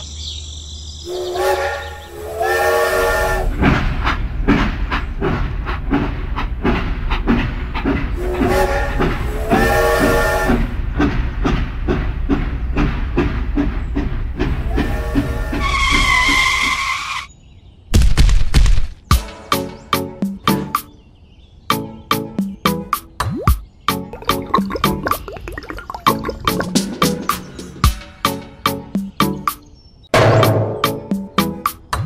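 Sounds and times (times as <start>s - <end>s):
train whistle blasts: 1.1s - 3.6s, 8.2s - 10.7s, 14.7s - 16.4s
steam train chugging: 1.1s - 16.6s.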